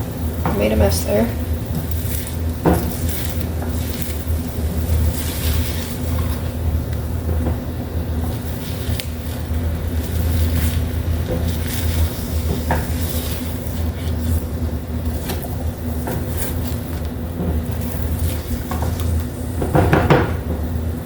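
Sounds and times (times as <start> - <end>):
steady low hum: 0.0 - 21.0
utensil scraping a frying pan: 0.6 - 6.8, 8.2 - 20.3.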